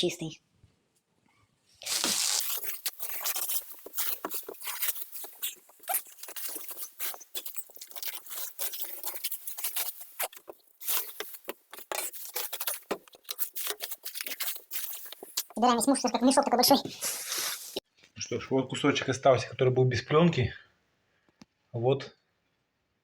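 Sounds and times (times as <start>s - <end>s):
plastic film crinkling: 1.8s - 15.6s.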